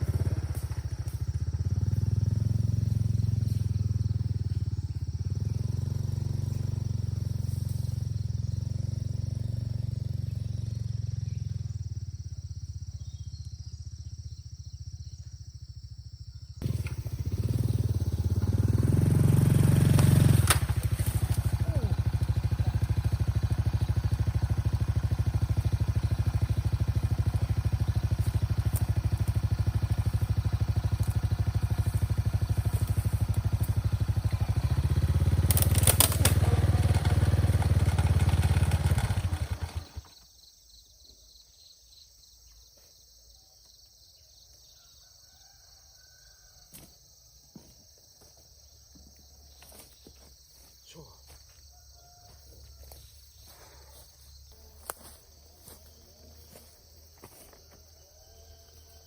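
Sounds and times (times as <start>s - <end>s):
small engine running: 0.0s - 40.2s.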